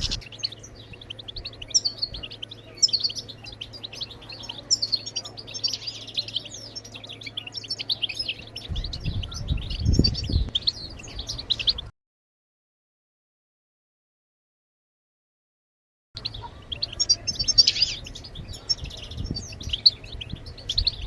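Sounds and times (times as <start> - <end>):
low rumble: 0.0 - 0.3
goldfinch twittering: 0.0 - 11.9, 16.2 - 21.0.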